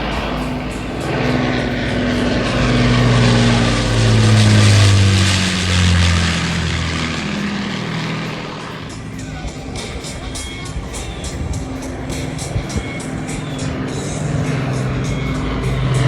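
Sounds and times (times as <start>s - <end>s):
propeller plane flying overhead: 0.0s - 16.0s.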